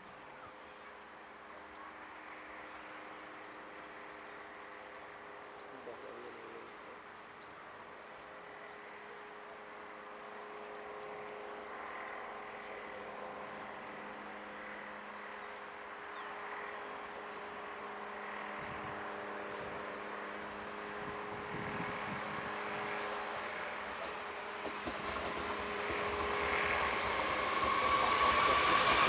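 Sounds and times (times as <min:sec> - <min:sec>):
approaching train hum: 0:08.4 - 0:29.0.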